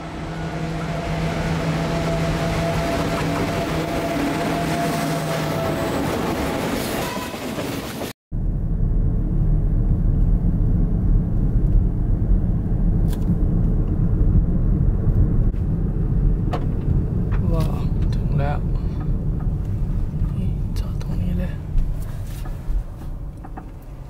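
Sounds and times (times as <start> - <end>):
diesel locomotive passing: 0.0 - 9.8
car engine rumble from inside: 8.4 - 24.0.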